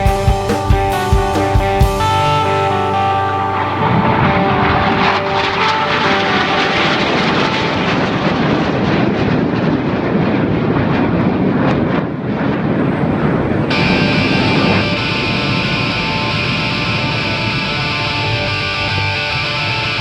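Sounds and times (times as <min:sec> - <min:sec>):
music: 0:00.0 - 0:07.8, 0:13.7 - 0:20.0
aircraft engine noise in flight: 0:00.0 - 0:20.0.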